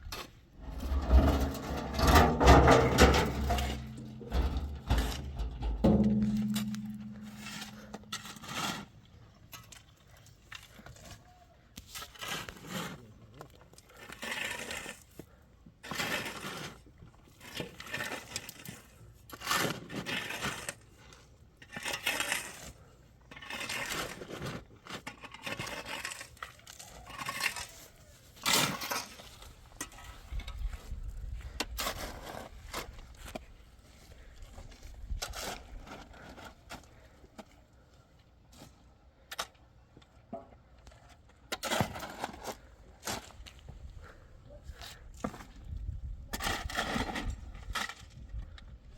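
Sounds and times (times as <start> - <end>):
hard objects clinking and scraping: 0.2 - 8.9.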